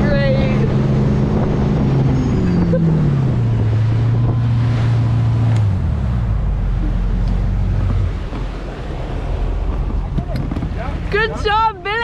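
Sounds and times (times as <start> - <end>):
motorboat engine running: 0.0 - 12.0
wind buffeting microphone: 0.0 - 12.0.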